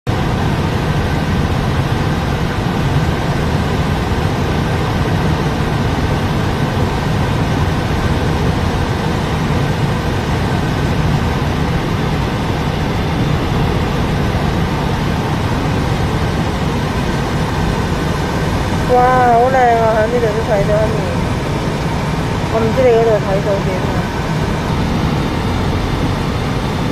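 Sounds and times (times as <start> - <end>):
car road and engine noise: 0.1 - 26.9.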